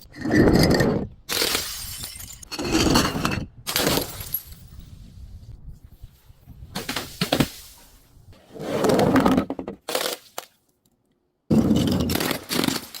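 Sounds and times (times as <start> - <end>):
objects smashing and crunching: 11.5 - 13.0.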